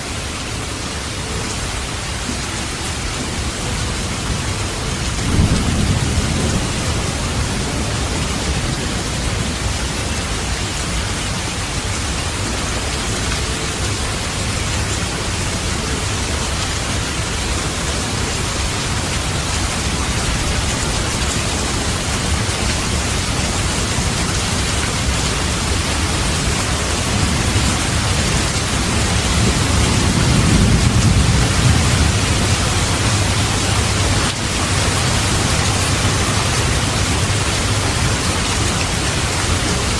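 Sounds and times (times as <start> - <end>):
heavy rain: 0.0 - 39.9
thunder rumbling: 4.3 - 10.6, 25.0 - 39.2.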